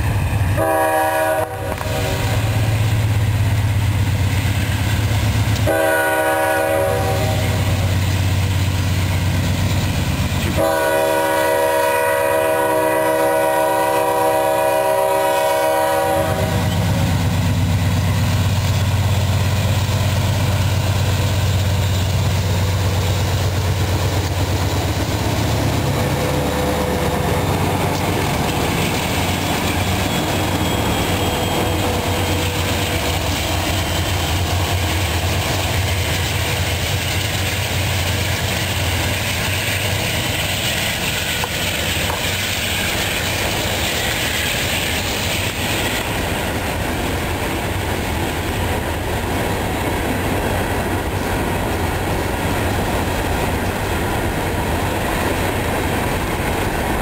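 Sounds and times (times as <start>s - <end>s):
diesel locomotive engine drone: 0.0s - 57.0s
locomotive air horn blasts: 0.6s - 2.6s, 5.6s - 7.7s, 10.6s - 16.8s.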